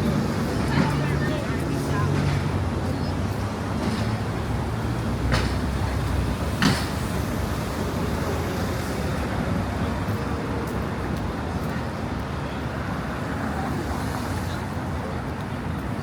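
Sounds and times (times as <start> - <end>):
passing vehicles hissing: 0.0 - 10.0
city traffic rumble: 0.0 - 16.0.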